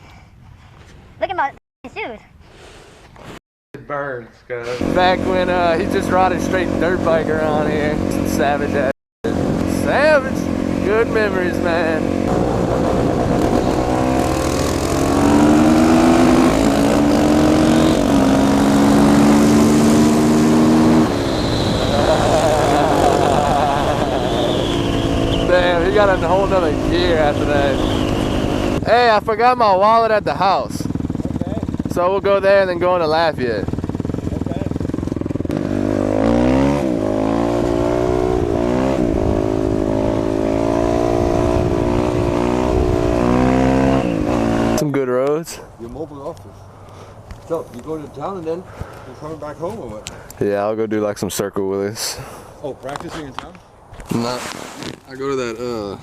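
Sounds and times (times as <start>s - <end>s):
dirt bike engine running: 4.8s - 44.8s.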